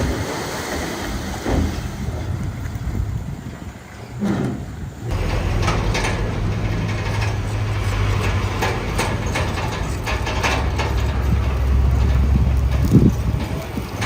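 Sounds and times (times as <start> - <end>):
bulldozer diesel engine running: 4.2 - 14.0
metallic clanks and rattles: 4.2 - 14.0.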